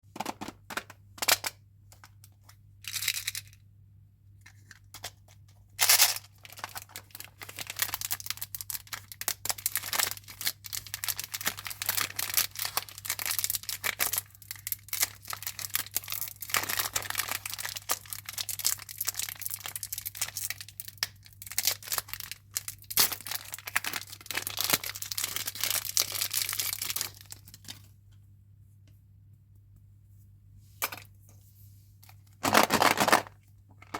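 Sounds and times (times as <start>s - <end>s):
wrappers crinkling: 5.8s - 27.8s, 32.0s - 33.9s
packaging tearing: 21.5s - 27.6s, 32.4s - 33.3s.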